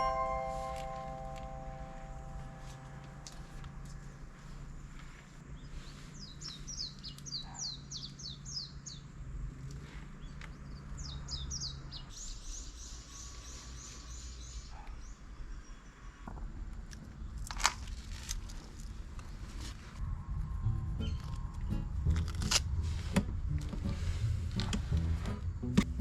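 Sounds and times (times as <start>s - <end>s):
low steady hum: 0.0s - 5.6s, 20.0s - 26.0s.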